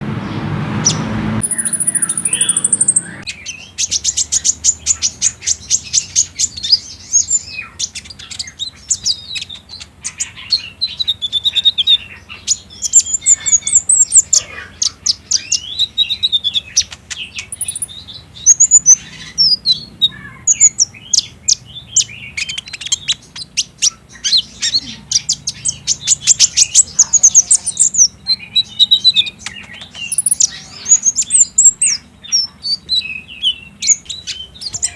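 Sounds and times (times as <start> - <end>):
bird trilling song: 0.0 - 34.9.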